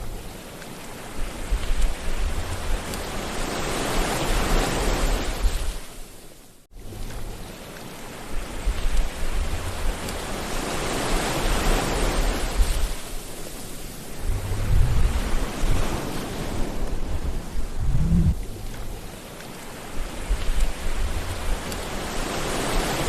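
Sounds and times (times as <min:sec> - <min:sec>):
sea waves washing: 0:00.0 - 0:06.1, 0:07.2 - 0:23.0
low rumble: 0:14.2 - 0:16.1, 0:16.8 - 0:19.1.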